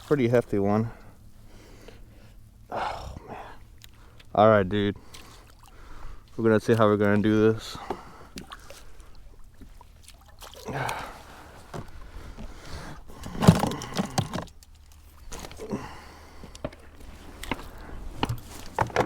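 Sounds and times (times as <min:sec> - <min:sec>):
water splashing: 0:03.2 - 0:18.8
handling noises: 0:10.9 - 0:19.0.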